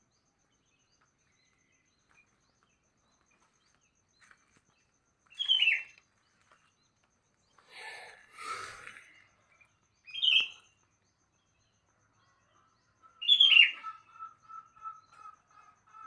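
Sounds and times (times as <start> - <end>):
bird chirping and calling: 5.4 - 5.8, 10.1 - 10.6, 13.2 - 14.0.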